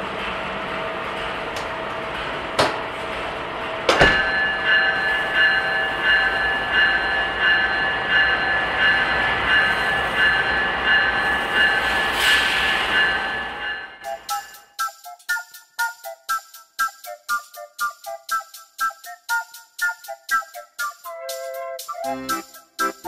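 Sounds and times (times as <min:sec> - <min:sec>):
train running noise: 0:00.0 - 0:23.0
sharp metal clank: 0:03.9 - 0:04.6.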